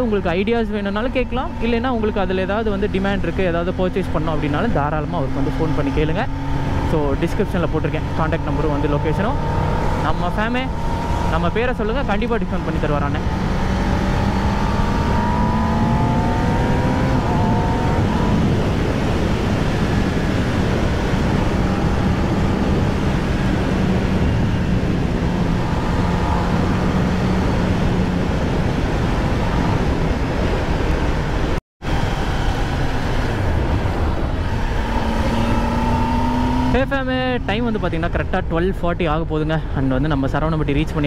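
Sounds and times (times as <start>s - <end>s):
wind and road noise: 0.0s - 41.0s.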